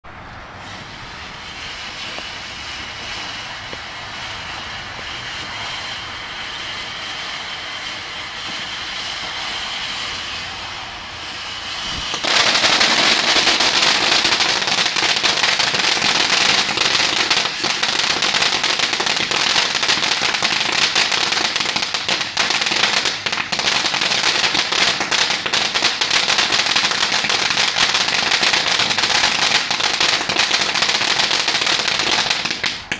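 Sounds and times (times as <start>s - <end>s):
firework crackling: 0.0s - 32.9s
firework hissing: 0.0s - 32.9s.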